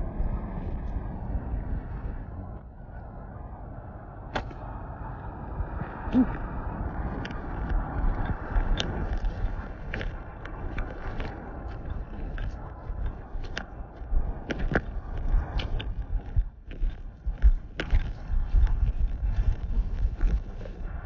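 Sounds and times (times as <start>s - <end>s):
footsteps crunching: 7.1s - 21.0s.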